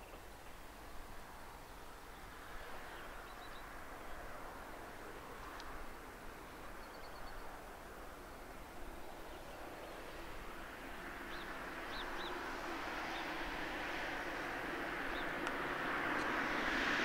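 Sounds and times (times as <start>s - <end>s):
diesel train engine drone: 0.0s - 17.0s
small birds chirping: 1.5s - 4.2s, 6.4s - 7.6s, 8.4s - 13.4s.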